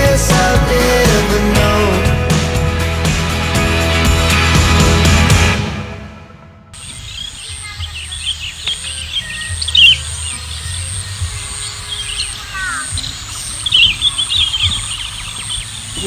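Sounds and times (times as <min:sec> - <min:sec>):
small birds chirping: 0:06.8 - 0:16.0.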